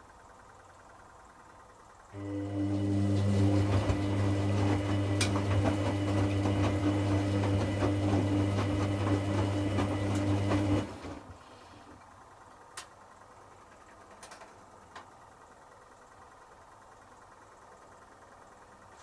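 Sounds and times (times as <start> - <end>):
washing machine motor humming: 0.0 - 19.0
water and laundry sloshing: 2.6 - 11.5.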